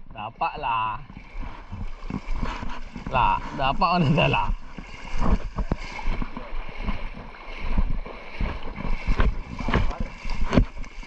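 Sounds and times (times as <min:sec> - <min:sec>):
water splashing: 0:00.0 - 0:11.0
wind on microphone: 0:01.0 - 0:11.0
knocks against a boat: 0:08.4 - 0:10.8.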